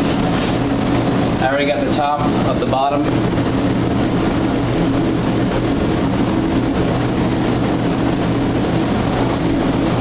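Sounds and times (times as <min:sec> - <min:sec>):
machine drone: 0:02.1 - 0:10.0.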